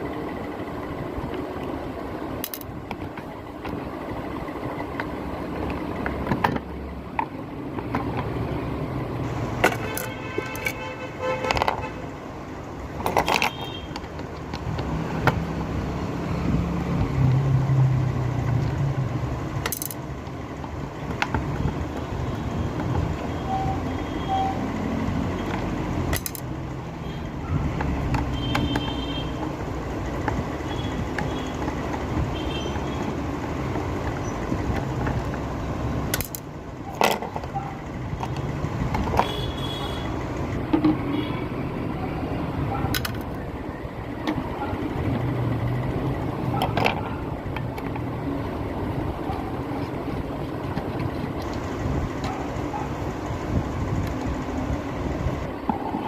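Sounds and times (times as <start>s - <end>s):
sharp clicks and knocks: 2.4s - 3.9s, 4.7s - 8.6s, 9.5s - 12.0s, 12.9s - 15.7s, 19.5s - 23.3s, 25.4s - 26.6s, 27.6s - 39.6s, 40.5s - 41.2s, 42.8s - 43.4s.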